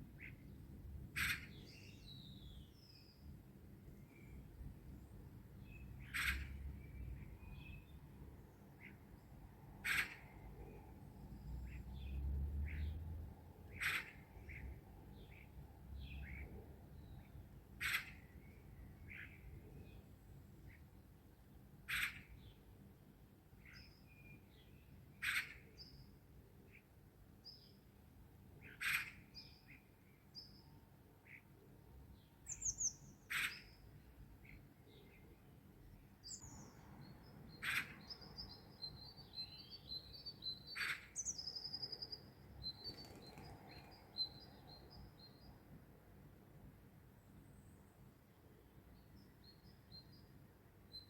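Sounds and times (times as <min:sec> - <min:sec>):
soft high bird chirps: 0:36.3 - 0:45.6.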